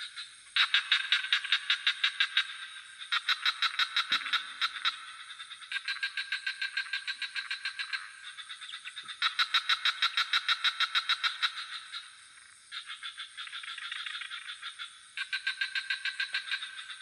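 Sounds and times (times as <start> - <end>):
frogs calling in pulsed trills: 0.0 - 17.0.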